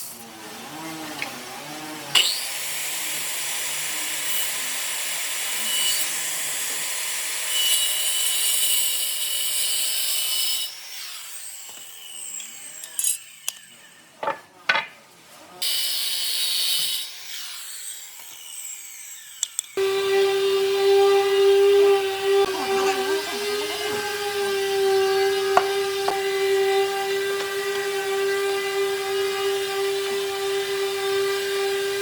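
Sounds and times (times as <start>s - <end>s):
power tool cutting wood: 0.0s - 14.4s, 15.6s - 32.0s
wood knocks and clicks: 14.2s - 15.0s, 25.5s - 26.3s.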